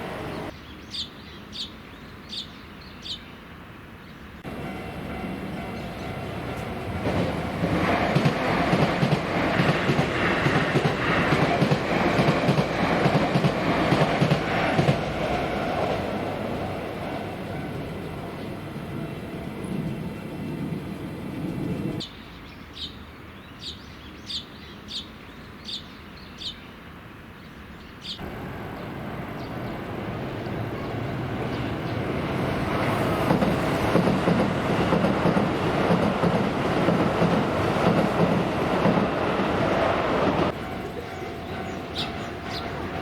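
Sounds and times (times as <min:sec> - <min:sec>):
electric train passing: 0:00.0 - 0:00.6, 0:04.4 - 0:22.0, 0:28.2 - 0:43.0
train rumble and wheel noise: 0:00.0 - 0:00.6, 0:04.2 - 0:22.1, 0:28.2 - 0:43.0.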